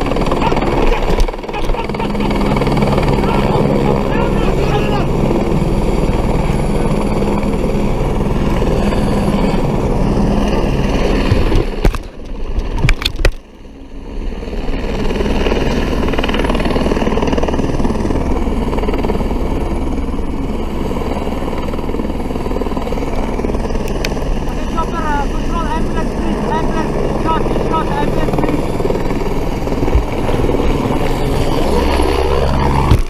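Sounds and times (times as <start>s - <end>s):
wind rushing over microphone: 5.1s - 13.2s, 22.5s - 33.0s
motorcycle engine at speed: 29.6s - 32.0s.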